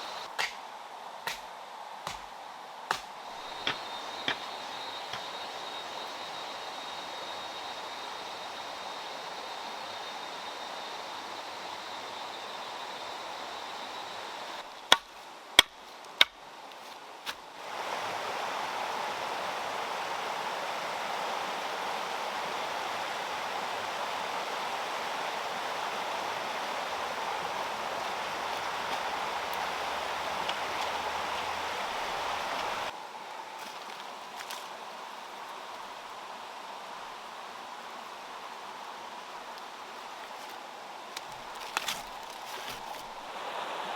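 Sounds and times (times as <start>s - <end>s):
water rushing: 17.6s - 32.9s, 41.4s - 43.9s.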